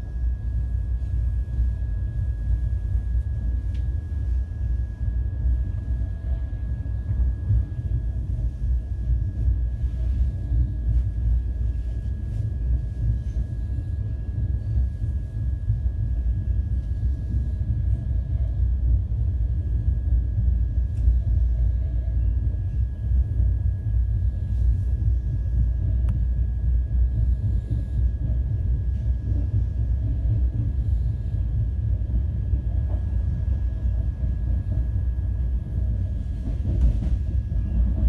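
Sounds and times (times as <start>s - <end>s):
train wheels rumbling on track: 20.4s - 38.0s.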